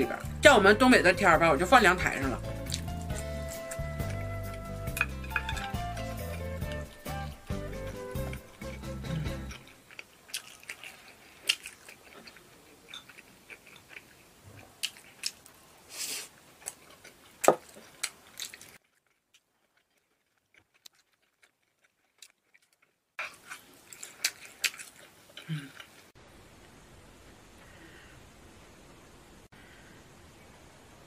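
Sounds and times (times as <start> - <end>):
person chewing: 2.5 - 26.1.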